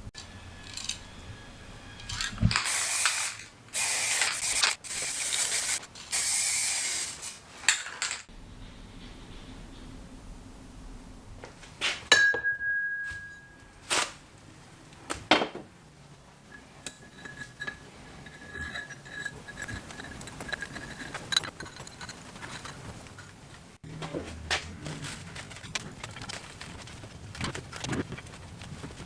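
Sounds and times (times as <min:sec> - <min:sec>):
metal ringing tone: 0:12.1 - 0:13.8
metal scraping: 0:16.4 - 0:29.0
metal parts clinking: 0:16.8 - 0:23.2.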